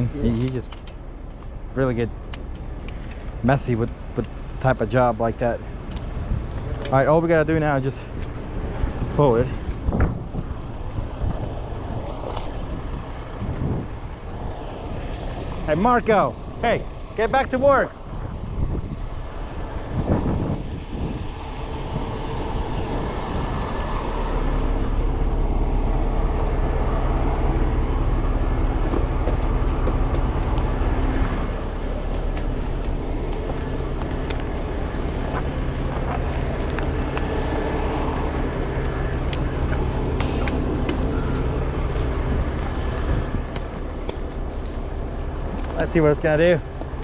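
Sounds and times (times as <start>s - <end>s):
diesel truck engine revving: 18.8s - 47.0s
short high-pitched sound: 40.2s - 41.7s.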